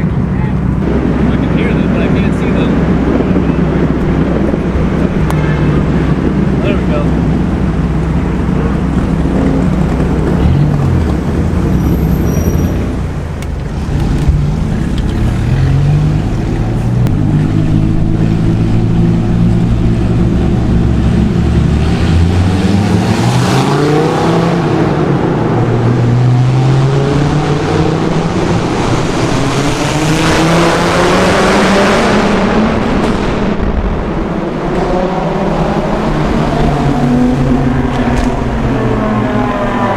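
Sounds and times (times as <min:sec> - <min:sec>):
car engine accelerating in tunnel: 0:00.0 - 0:39.9.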